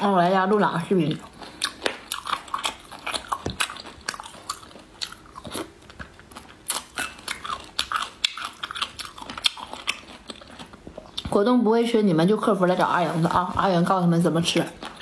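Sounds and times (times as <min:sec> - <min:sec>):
chewing and biting food: 0:00.5 - 0:11.4, 0:14.5 - 0:15.0.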